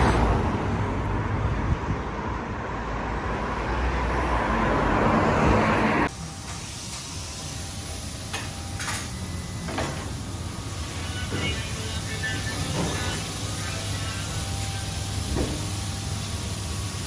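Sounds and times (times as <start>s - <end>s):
road vehicle hiss and rumble: 0.0s - 17.0s.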